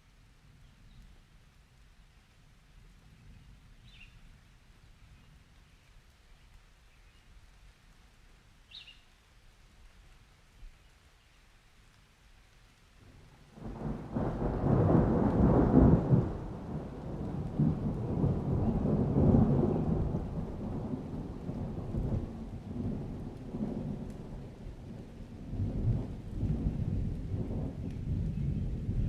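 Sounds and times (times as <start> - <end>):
thunder rumbling: 13.1 - 29.0.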